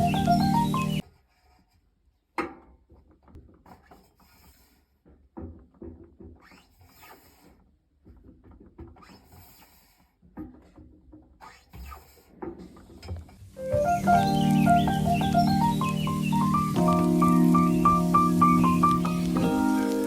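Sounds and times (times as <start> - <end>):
light knocks and rubbing: 2.4 - 13.6.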